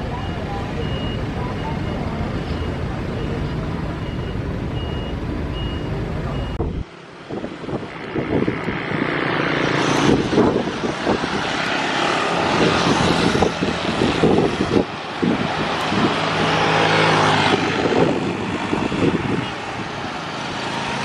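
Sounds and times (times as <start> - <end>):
steady low rumble: 0.0 - 16.2
jet airliner engines rushing: 0.0 - 21.0
short beeps: 0.1 - 6.8.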